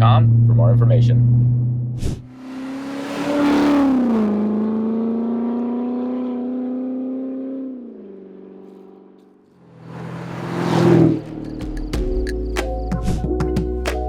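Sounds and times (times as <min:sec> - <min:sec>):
car engine exhaust note: 0:00.0 - 0:02.6.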